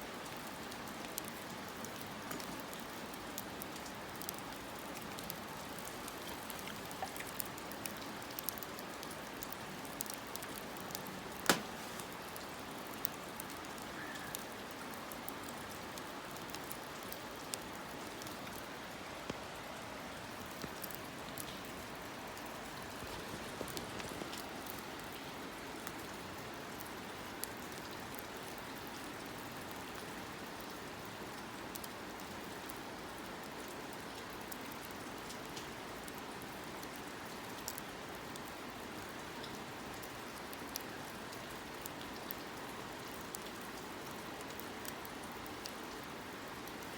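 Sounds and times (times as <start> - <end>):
wood fire crackling: 0.2 - 26.0
sharp loud pop of fire: 11.4 - 12.0.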